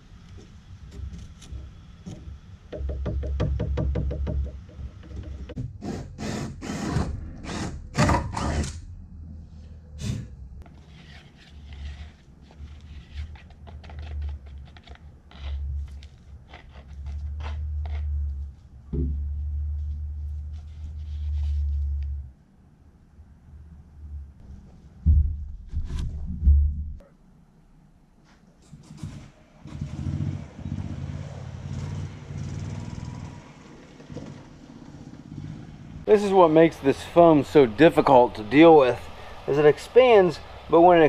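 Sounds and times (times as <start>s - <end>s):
knocks and clicks: 1.0s - 5.8s
low rumble: 7.0s - 10.7s
scraping strokes: 9.5s - 18.7s, 19.8s - 22.2s.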